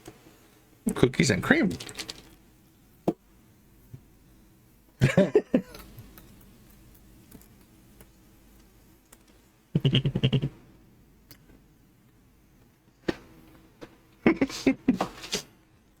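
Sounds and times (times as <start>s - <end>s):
faint small clicks: 5.7s - 9.4s.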